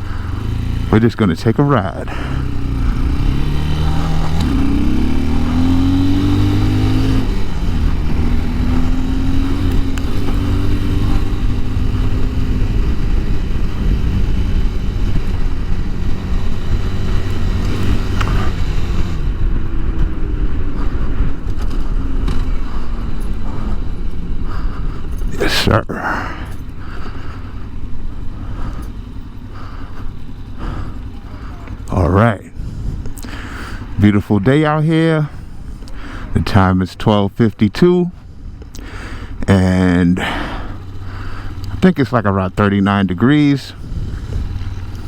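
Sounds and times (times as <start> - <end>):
motorcycle engine accelerating: 0.0 - 45.0.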